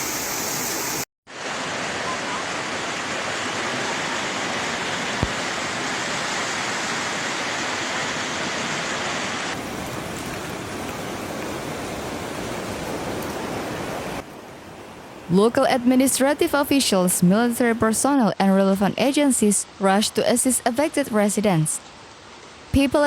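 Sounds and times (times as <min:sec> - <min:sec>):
floodwater rushing: 0:00.0 - 0:17.7.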